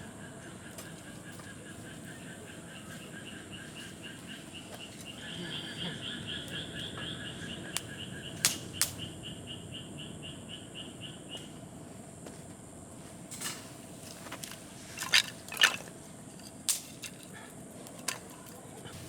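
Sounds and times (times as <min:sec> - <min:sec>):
small animal calling rhythmically: 0:00.0 - 0:11.6
sharp cracks: 0:07.8 - 0:09.1.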